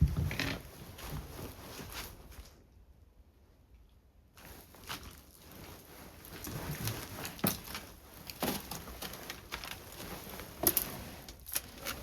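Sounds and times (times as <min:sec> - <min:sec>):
footsteps in a small room: 0:00.0 - 0:02.7
knocks and shuffles: 0:00.0 - 0:02.7, 0:04.4 - 0:12.0.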